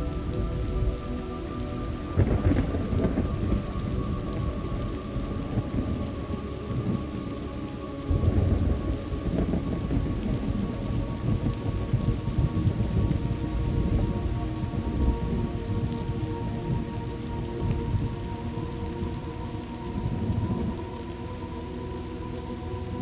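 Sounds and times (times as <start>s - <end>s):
steady rain: 0.0s - 23.0s
rolling thunder: 2.1s - 7.0s, 8.1s - 16.9s.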